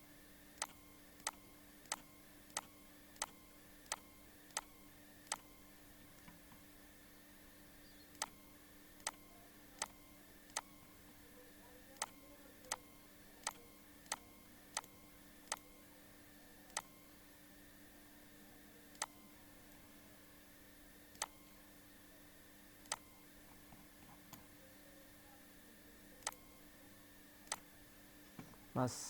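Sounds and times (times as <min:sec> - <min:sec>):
faint steady hum: 0:00.0 - 0:29.0
computer mouse clicking: 0:00.6 - 0:05.6, 0:08.1 - 0:11.0, 0:11.9 - 0:15.8, 0:16.7 - 0:17.0, 0:18.9 - 0:19.3, 0:21.1 - 0:21.5, 0:22.8 - 0:23.2, 0:26.2 - 0:26.6.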